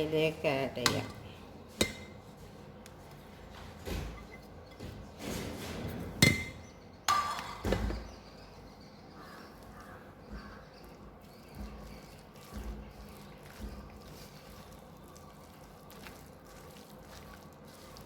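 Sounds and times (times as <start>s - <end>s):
utensils clinking on cooking pot: 0.8s - 2.3s, 6.2s - 8.0s.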